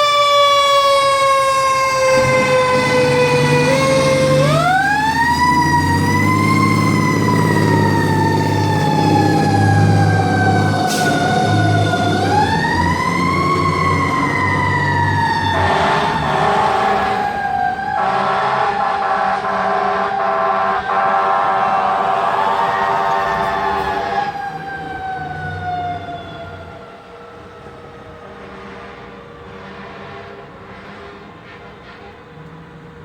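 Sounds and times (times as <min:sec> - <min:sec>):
fire engine siren wailing: 0:00.0 - 0:33.0
truck engine rumble: 0:00.0 - 0:33.0.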